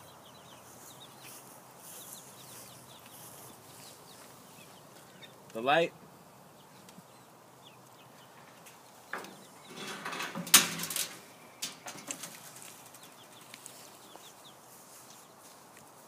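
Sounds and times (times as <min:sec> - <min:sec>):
chickens clucking: 0:00.0 - 0:15.3.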